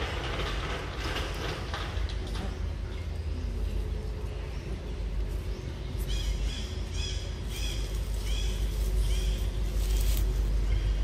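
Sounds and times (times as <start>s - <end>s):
steady low rumble: 2.6s - 11.0s
bird chirping: 2.8s - 11.0s.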